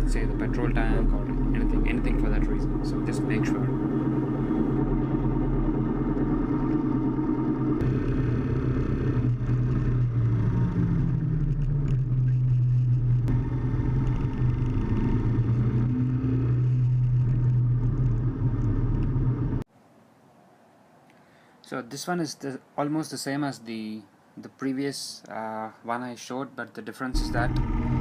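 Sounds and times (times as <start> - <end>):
motorcycle engine running: 0.0 - 19.6, 27.2 - 28.0
road noise: 0.0 - 19.7.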